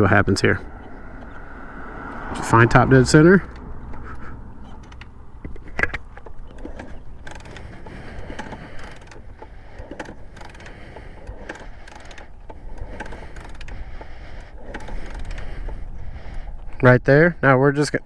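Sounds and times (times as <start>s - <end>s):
kickstart ratchet clicking: 3.4s - 15.7s.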